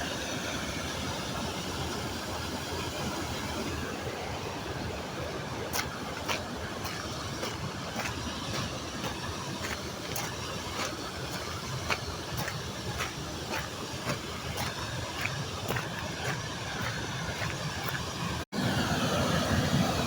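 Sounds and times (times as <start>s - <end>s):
waterfall pouring and splashing: 0.1s - 20.0s
sharp splashes and drips: 4.9s - 18.5s.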